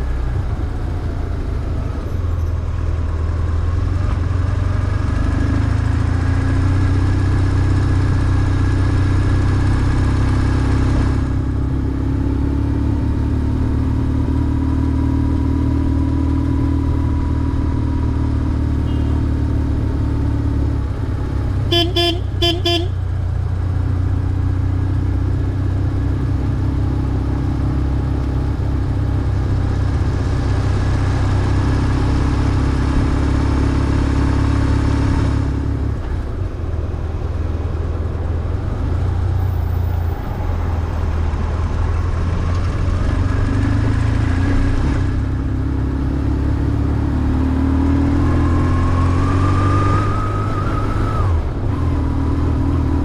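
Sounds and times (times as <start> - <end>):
motorcycle engine running: 17.6 - 24.6.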